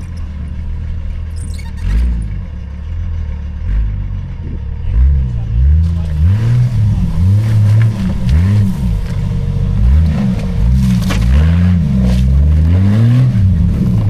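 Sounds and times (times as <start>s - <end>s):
car engine revving hard: 4.9s - 14.0s.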